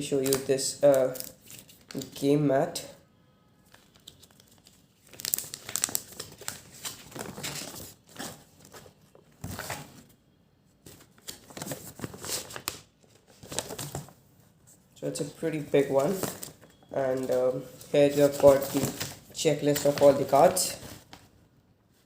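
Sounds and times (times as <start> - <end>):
game mat rustling and crinkling: 3.7 - 10.2, 10.8 - 21.4.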